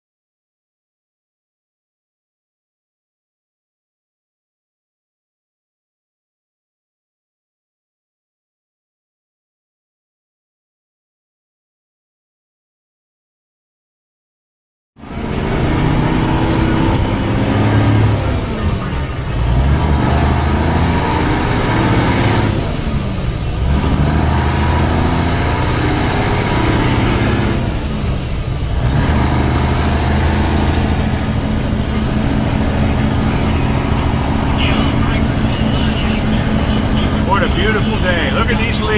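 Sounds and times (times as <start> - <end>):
truck diesel engine shifting gears: 15.0 - 38.9.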